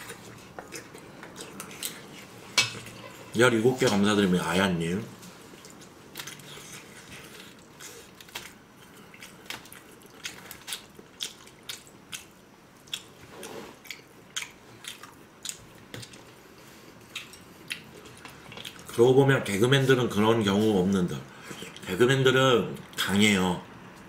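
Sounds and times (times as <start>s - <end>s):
food being bitten and chewed: 5.6s - 19.0s.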